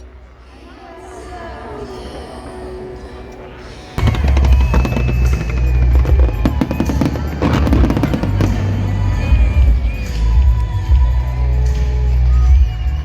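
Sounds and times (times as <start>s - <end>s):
fireworks crackling: 3.6s - 12.3s
festival music with heavy bass: 4.0s - 13.0s.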